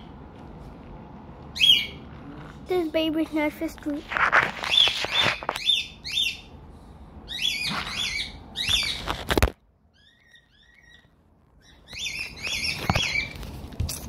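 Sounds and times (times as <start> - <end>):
bird chirping: 1.5 - 2.1, 4.6 - 6.5, 7.2 - 9.2, 9.9 - 13.4.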